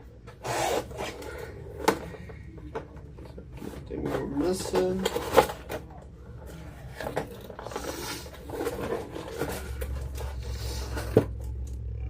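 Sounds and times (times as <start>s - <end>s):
packaging rustling: 3.2s - 11.6s.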